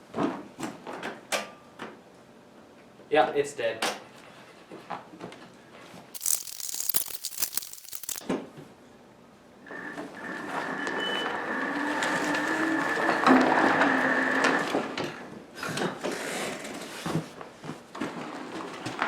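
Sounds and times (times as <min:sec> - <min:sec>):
clicking and rattling: 0:06.2 - 0:08.2
electric mower whine: 0:09.7 - 0:14.9.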